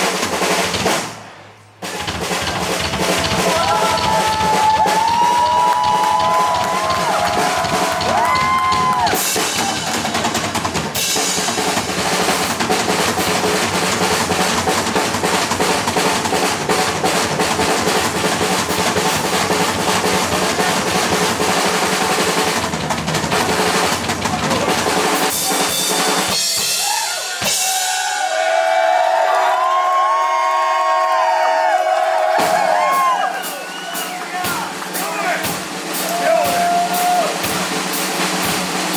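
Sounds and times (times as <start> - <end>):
fast bass drum and snare hits: 0.0 - 1.2, 1.8 - 28.1, 32.3 - 38.9
heavy metal band playing live: 2.0 - 28.2.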